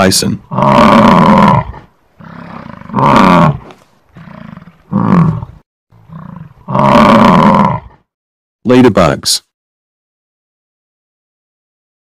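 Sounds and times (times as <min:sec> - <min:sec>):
bison bellowing: 0:00.5 - 0:08.0.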